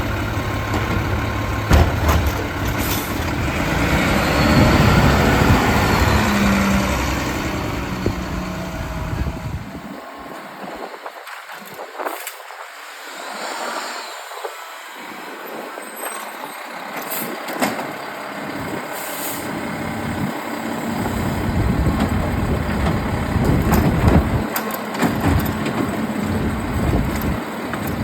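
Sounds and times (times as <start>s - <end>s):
heavy truck engine running: 0.0s - 10.8s, 16.6s - 28.0s
short air hisses: 19.0s - 19.5s.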